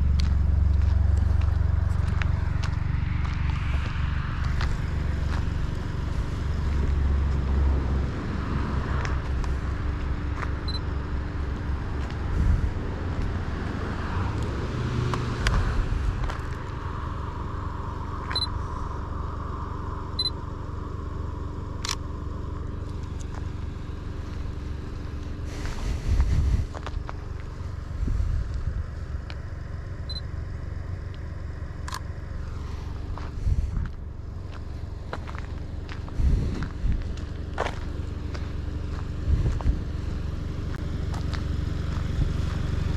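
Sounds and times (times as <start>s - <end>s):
car engine driving: 0.0s - 42.9s
road noise: 0.0s - 42.9s.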